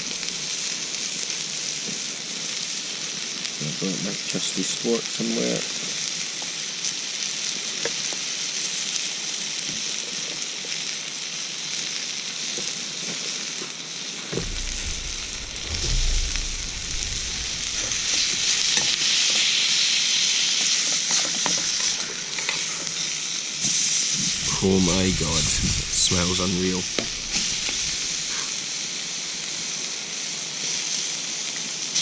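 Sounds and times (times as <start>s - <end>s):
meat sizzling in a pan: 0.0s - 32.0s
low rumble: 14.4s - 19.3s, 24.2s - 28.9s
stirring clicks and scrapes: 21.1s - 22.9s.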